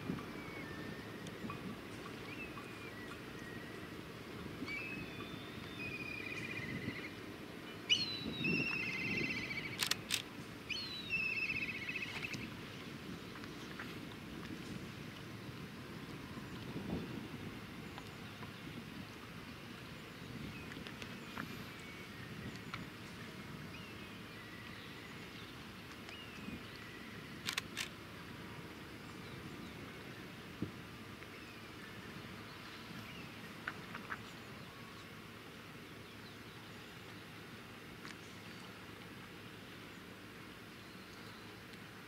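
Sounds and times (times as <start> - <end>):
faint gliding bird whistles: 0.2 - 3.9, 4.6 - 10.0, 10.7 - 12.5
sharp clicks: 9.7 - 10.3, 27.4 - 27.9.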